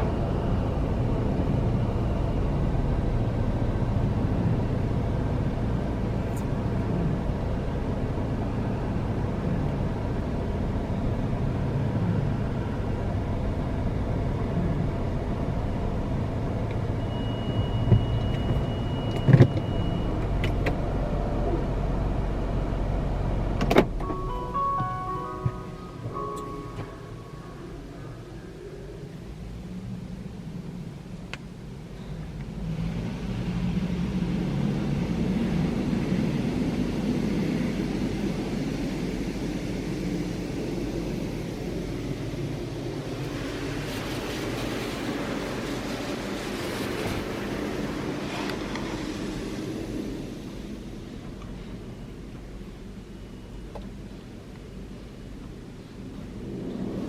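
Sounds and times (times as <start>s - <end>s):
car wash water spray rumble: 0.0s - 57.0s
high whine: 24.0s - 29.5s.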